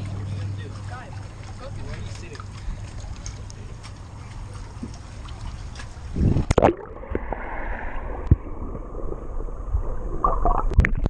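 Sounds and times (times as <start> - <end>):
muffled underwater rushing and bubbling: 0.0 - 11.0
camera splashing into water: 6.2 - 7.4.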